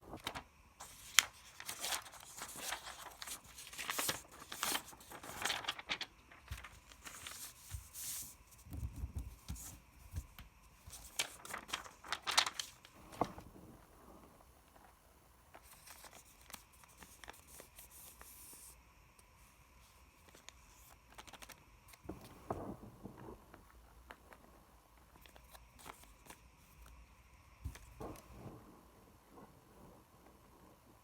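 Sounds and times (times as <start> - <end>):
paper crinkling and rustling: 0.0 - 13.8, 14.6 - 18.8, 19.8 - 24.4, 25.0 - 28.5.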